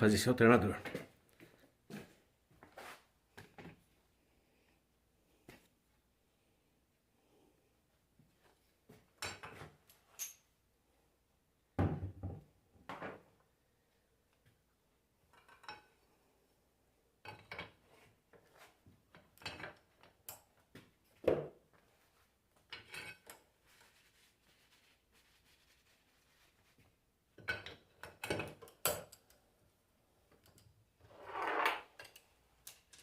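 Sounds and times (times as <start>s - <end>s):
metal tools clinking and knocking: 9.2s - 10.5s, 15.3s - 16.0s, 31.8s - 33.0s.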